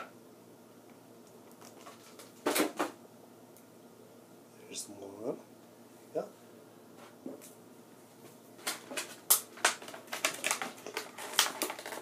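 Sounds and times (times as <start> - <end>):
toy packaging clicks and crackles: 8.6 - 12.0.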